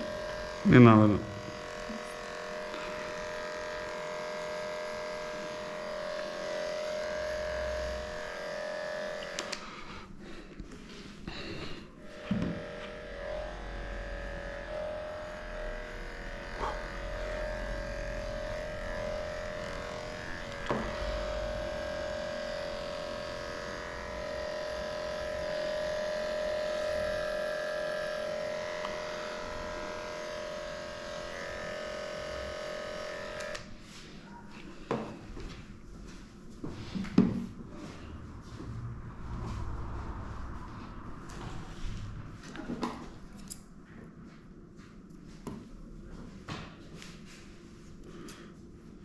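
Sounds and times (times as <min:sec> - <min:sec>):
electric clippers humming: 0:00.0 - 0:10.1, 0:11.3 - 0:33.8.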